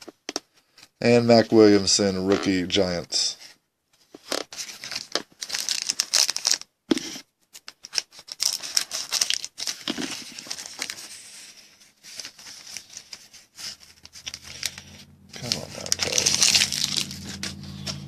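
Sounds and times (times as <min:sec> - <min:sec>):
plastic wrapper crinkling and tearing: 0:04.2 - 0:06.7, 0:07.5 - 0:18.0.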